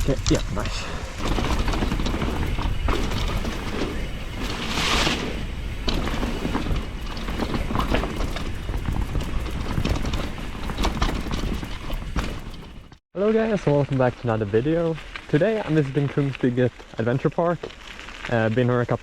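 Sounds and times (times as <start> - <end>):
wind buffeting microphone: 0.0 - 12.6
bike knocks and rattles: 0.0 - 13.0.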